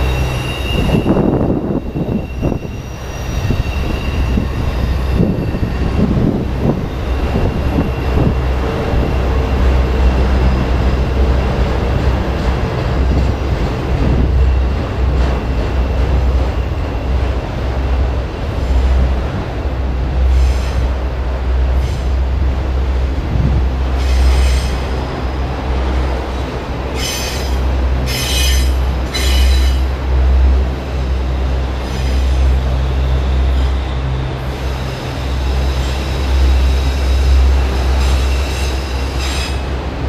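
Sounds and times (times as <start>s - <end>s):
high wheel squeal: 0.0s - 10.8s, 24.0s - 25.2s, 26.4s - 29.9s, 31.3s - 39.8s
freight cars rumbling on rails: 0.0s - 40.0s.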